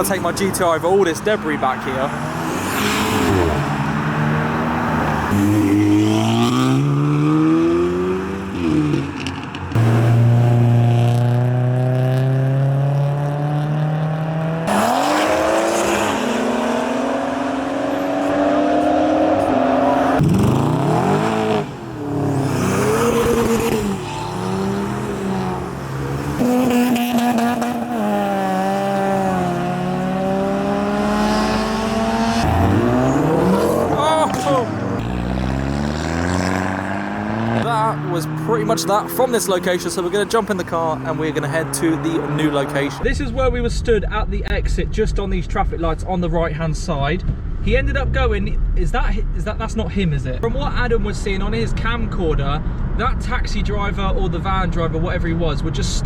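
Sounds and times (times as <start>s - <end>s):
car engines accelerating past: 1.8s - 43.0s.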